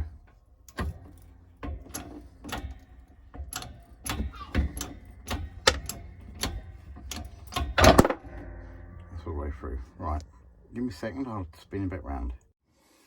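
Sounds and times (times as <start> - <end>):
metallic clicks of hole punch: 0.6 - 8.5.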